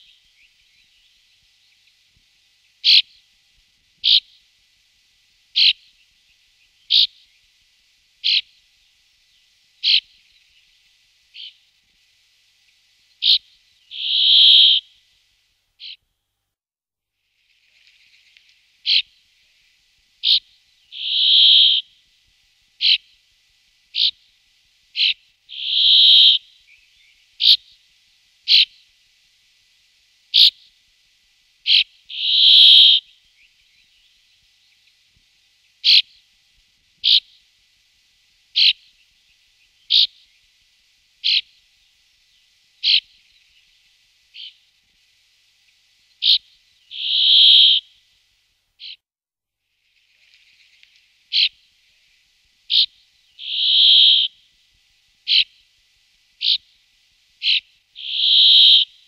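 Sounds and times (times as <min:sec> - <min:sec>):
long bird notes: 0:13.2 - 0:15.0, 0:20.2 - 0:22.0, 0:25.0 - 0:27.6, 0:46.2 - 0:48.0, 0:52.7 - 0:54.4, 0:57.4 - 0:59.0
bird calling sharp high notes: 0:13.9 - 0:14.8, 0:21.0 - 0:21.8, 0:46.9 - 0:47.8, 0:53.4 - 0:54.3, 0:57.4 - 0:58.9.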